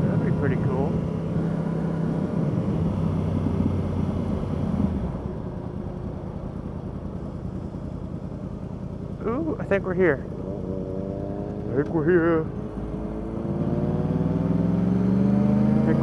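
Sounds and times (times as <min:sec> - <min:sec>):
motorcycle engine running: 0:00.0 - 0:14.8
wind and road rumble: 0:00.0 - 0:16.0.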